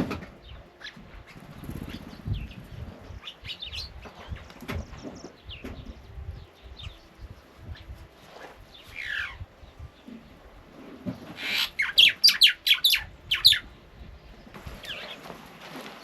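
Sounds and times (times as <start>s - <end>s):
bird calling and chirping: 0.0s - 15.4s.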